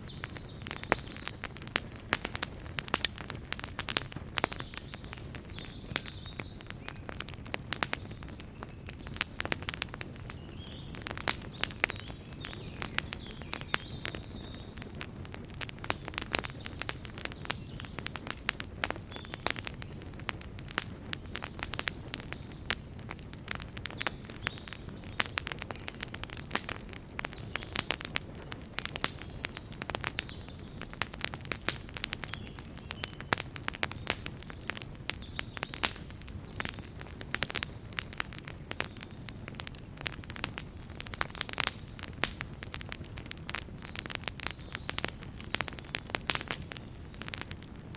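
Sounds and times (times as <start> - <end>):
bonfire crackling and popping: 0.0 - 47.9
low rumble of fire: 0.0 - 47.9.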